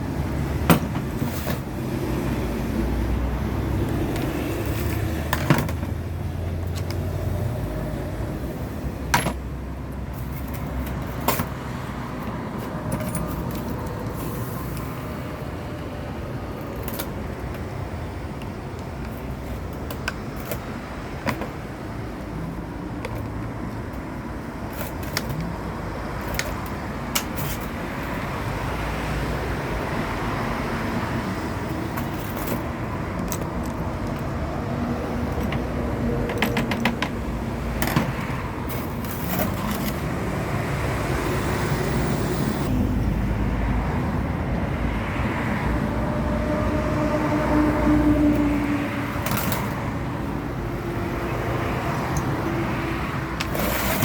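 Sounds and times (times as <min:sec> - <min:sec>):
traffic noise: 0:00.0 - 0:54.0.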